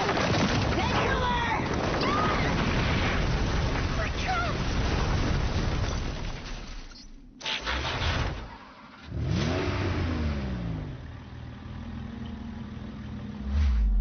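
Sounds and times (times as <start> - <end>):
low rumble: 13.2 - 14.0.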